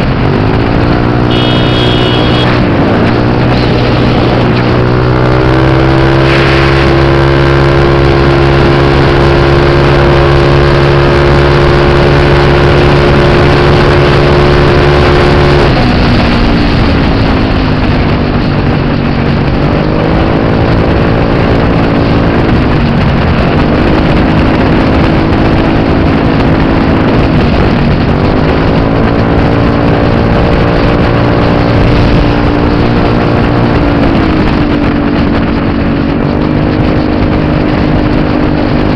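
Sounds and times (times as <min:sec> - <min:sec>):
scooter engine revving: 0:01.0 - 0:07.4.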